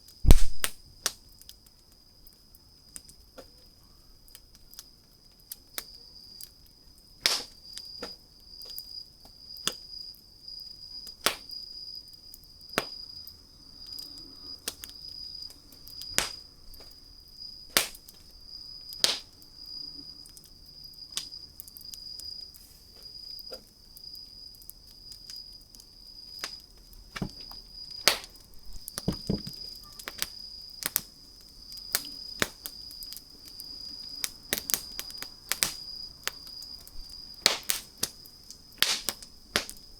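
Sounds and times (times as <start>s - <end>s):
wood fire crackling and popping: 0.0s - 3.7s, 4.3s - 8.0s, 12.3s - 17.0s, 17.6s - 18.3s, 18.9s - 19.5s, 27.2s - 39.9s.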